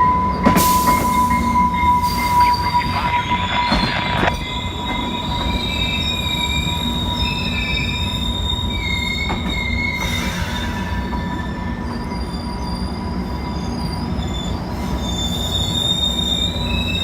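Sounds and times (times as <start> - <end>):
low train rumble: 0.0 - 17.0
train wheels squealing on rails: 0.0 - 17.0.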